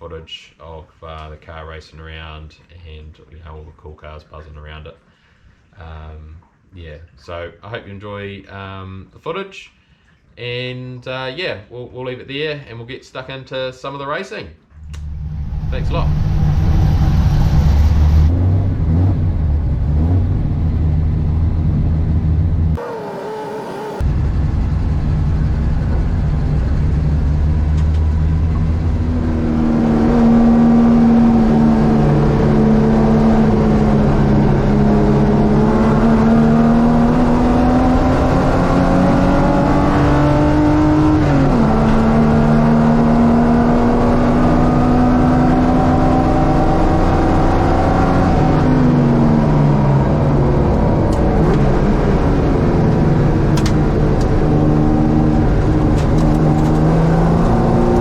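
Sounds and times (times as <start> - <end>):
race car engine revving: 14.8 - 24.3, 25.3 - 58.0.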